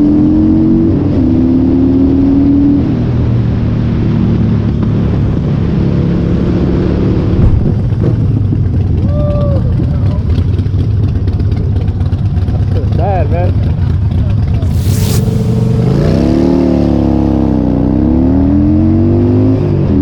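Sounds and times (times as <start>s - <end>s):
rushing noise: 14.6s - 17.7s.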